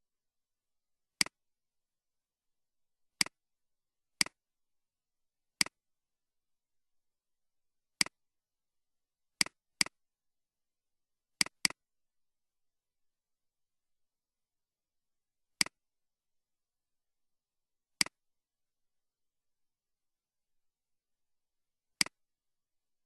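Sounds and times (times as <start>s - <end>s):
computer mouse clicks: 11.4s - 11.8s, 22.0s - 22.2s.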